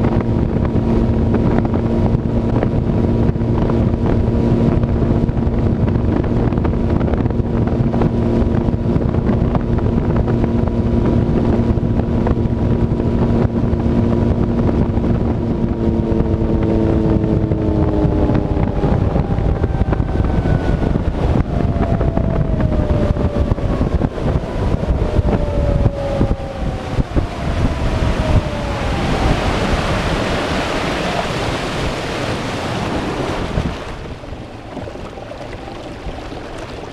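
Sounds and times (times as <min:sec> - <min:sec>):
outboard motor running: 0:00.0 - 0:36.9
wind on microphone: 0:00.0 - 0:36.9
rushing water: 0:26.5 - 0:36.9.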